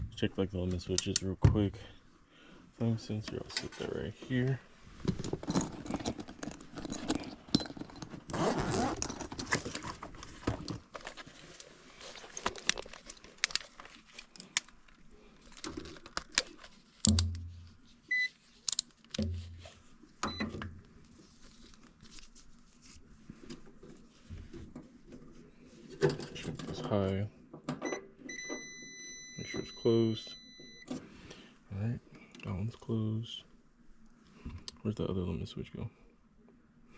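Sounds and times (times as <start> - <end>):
metal parts clinking: 5.2 - 9.8.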